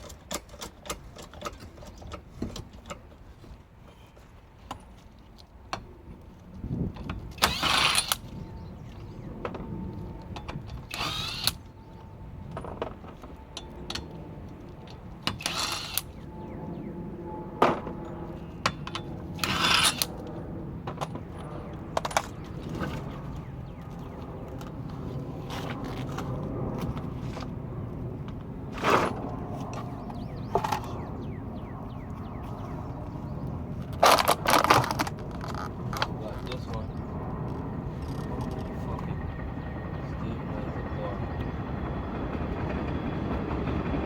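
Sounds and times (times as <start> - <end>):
power tool bursts: 7.4 - 8.2, 10.9 - 11.6.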